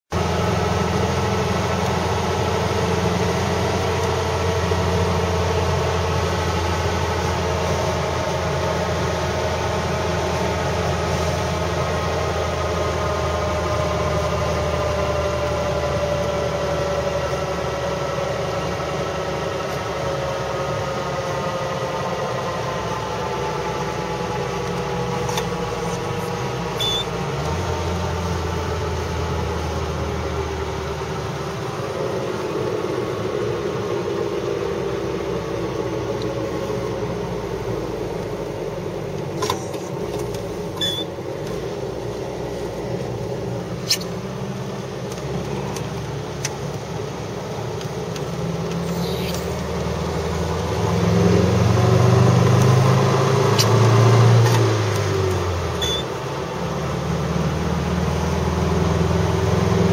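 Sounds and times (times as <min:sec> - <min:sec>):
car engine inside cabin: 0:00.1 - 0:59.9
faint high chirp: 0:26.8 - 0:27.1, 0:40.8 - 0:41.1, 0:55.8 - 0:56.2.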